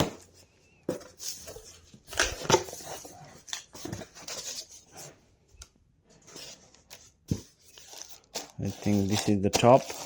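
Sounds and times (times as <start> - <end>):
cardboard packaging rustling: 6.2 - 10.0.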